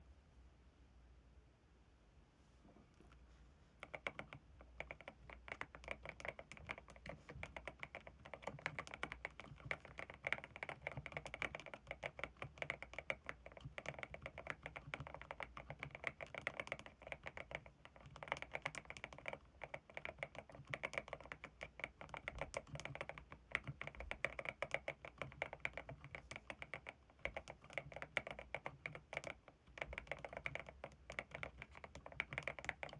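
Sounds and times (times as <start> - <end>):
mechanical keyboard typing: 3.8 - 32.9.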